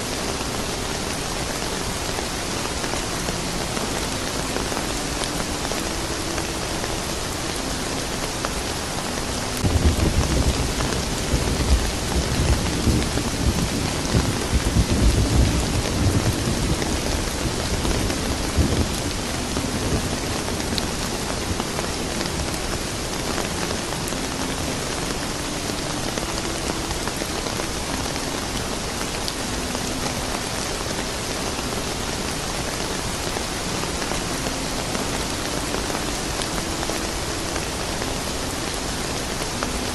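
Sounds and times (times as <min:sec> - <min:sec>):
steady rain falling: 0:00.0 - 0:39.9
rolling thunder rumble: 0:09.6 - 0:21.6.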